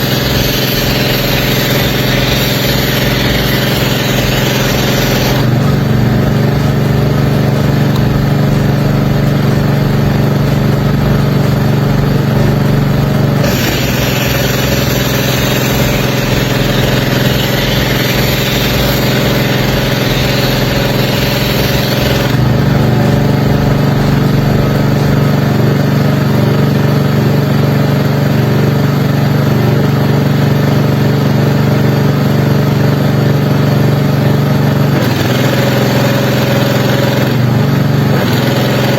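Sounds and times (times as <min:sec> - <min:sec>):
spray hissing: 0:00.0 - 0:26.8
engine idling: 0:00.0 - 0:38.9.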